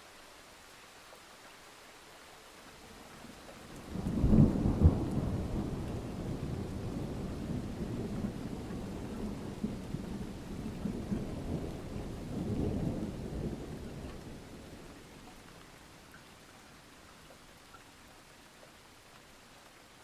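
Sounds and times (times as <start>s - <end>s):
steady rain: 0.0s - 20.0s
rolling thunder: 3.8s - 15.0s.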